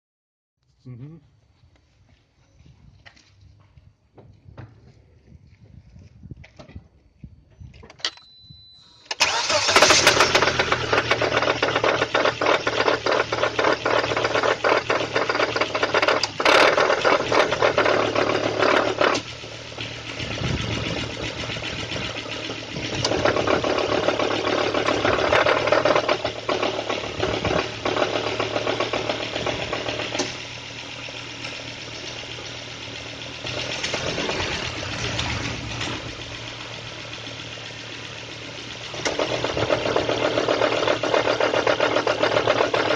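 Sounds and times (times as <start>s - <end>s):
car engine idling with knocking: 9.3s - 42.9s.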